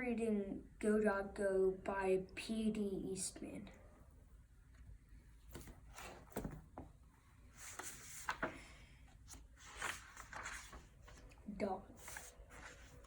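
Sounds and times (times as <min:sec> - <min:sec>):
book pages rustling: 0:05.4 - 0:13.0.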